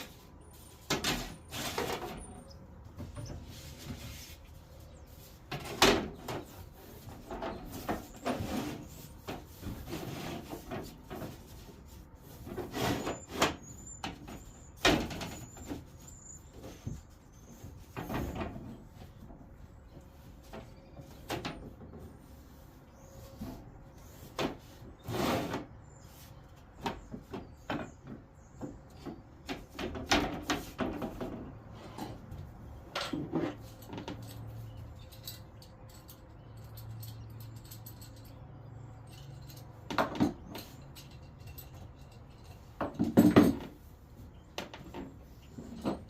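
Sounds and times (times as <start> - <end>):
wooden boards knocking and clattering: 5.5 - 11.5, 26.8 - 31.7, 42.8 - 43.8.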